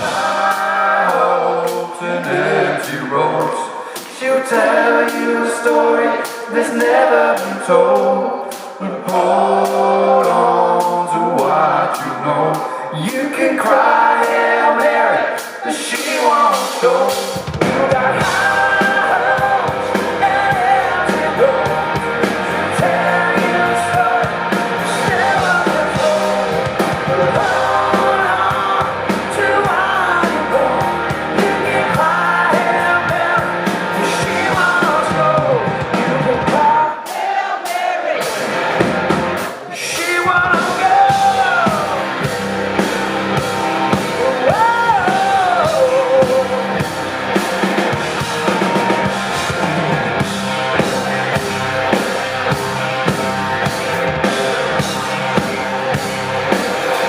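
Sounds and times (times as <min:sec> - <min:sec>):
rock band playing live: 0:00.0 - 0:57.0
pitch-bending guitar lead: 0:17.3 - 0:36.6, 0:38.2 - 0:57.0.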